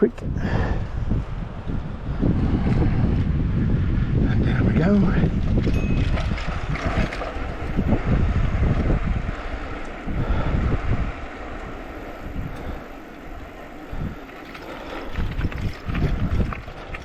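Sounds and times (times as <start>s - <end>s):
wind buffeting microphone: 0.0s - 17.0s
bicycle thumps and rattles: 13.5s - 17.0s.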